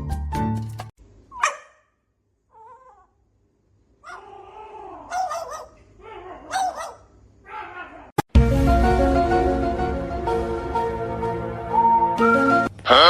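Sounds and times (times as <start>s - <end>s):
pet yelping and whining: 1.3s - 1.8s, 2.5s - 3.2s, 4.0s - 8.1s
background music: 8.3s - 12.9s.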